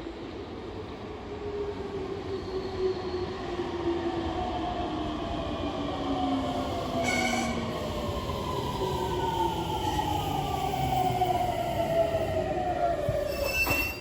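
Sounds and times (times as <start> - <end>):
high brake squeal: 7.0 - 7.9, 13.2 - 14.0.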